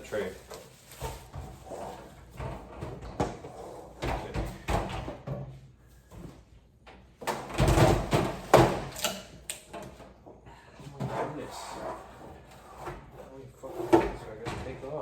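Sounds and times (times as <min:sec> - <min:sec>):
knocks and clatter of parts: 0:02.2 - 0:10.3.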